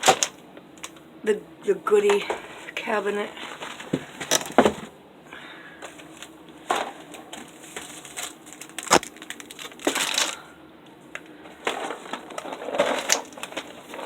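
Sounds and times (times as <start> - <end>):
packaging rustling and crinkling: 3.4 - 4.9, 5.8 - 10.5, 11.2 - 14.0.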